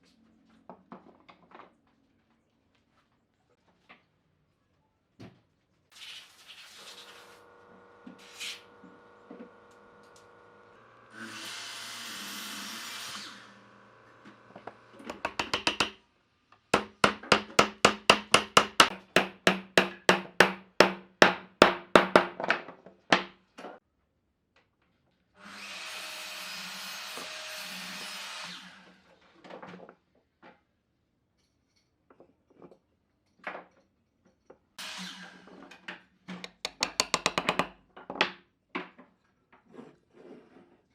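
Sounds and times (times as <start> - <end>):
power tool running: 6.6 - 16.0, 16.8 - 21.0
sharp knocks on wood: 15.0 - 16.0, 16.8 - 22.5, 36.5 - 37.8.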